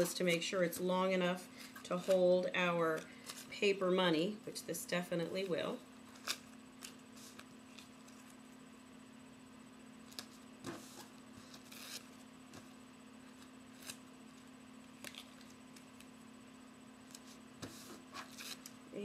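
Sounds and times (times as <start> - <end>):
low steady hum: 0.0 - 19.0
duct tape rustling: 6.1 - 8.4, 10.1 - 12.7, 13.3 - 16.2, 17.0 - 18.8.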